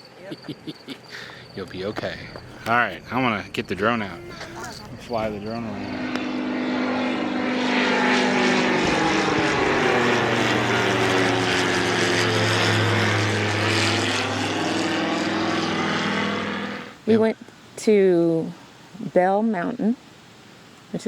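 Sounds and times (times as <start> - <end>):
drone propellers whirring: 1.3 - 17.3.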